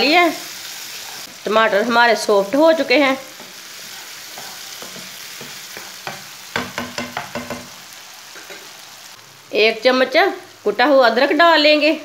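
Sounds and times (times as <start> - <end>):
masala sizzling in oil: 0.0 - 12.0
spatula scraping a pan: 0.6 - 1.4, 3.3 - 8.8.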